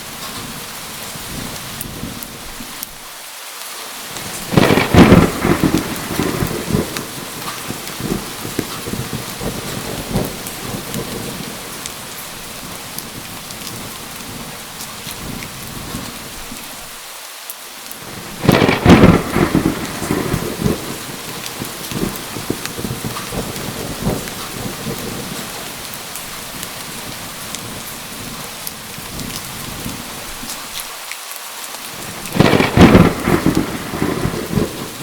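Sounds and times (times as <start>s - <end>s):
steady rain: 0.0s - 35.0s
loud thunderclap: 4.2s - 16.2s, 18.1s - 30.4s, 32.0s - 35.0s
low rolling thunder: 4.2s - 16.6s, 18.0s - 30.5s, 32.0s - 35.0s.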